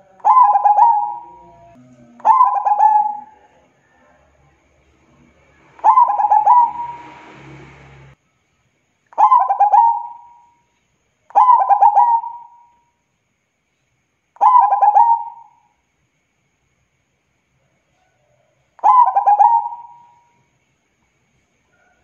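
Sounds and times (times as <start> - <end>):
dove cooing trills: 0.0 - 3.5, 5.8 - 7.3, 9.2 - 10.5, 11.3 - 12.7, 14.4 - 15.6, 18.8 - 20.3.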